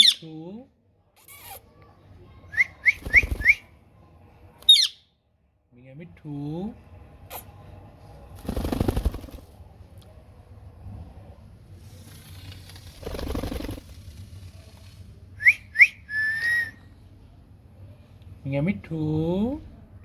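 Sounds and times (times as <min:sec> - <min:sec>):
parrot whistling: 0:04.7 - 0:05.0, 0:15.4 - 0:16.8.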